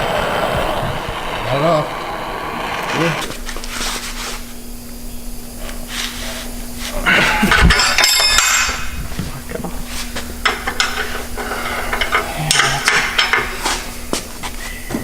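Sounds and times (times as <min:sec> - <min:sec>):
low hum: 0:00.0 - 0:03.5
metal parts clanking: 0:07.3 - 0:09.0.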